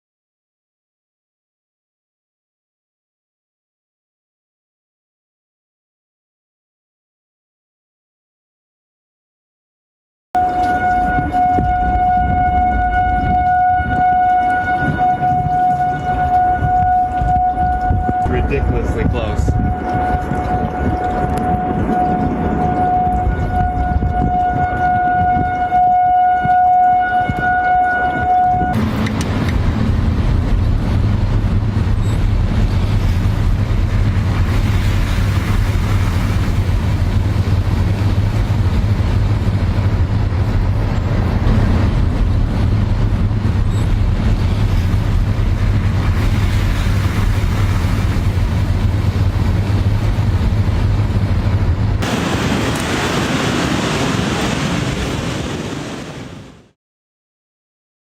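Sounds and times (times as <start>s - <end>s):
warning siren steady tone: 10.4s - 29.4s
wind buffeting microphone: 10.4s - 56.4s
heavy low rumble: 10.4s - 56.6s.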